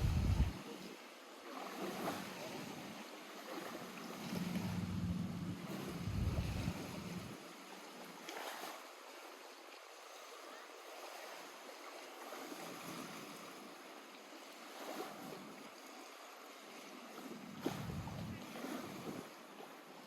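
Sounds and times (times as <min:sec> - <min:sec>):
low rumble: 0:00.0 - 0:00.5, 0:04.3 - 0:07.4
waves lapping at shore: 0:00.0 - 0:20.0.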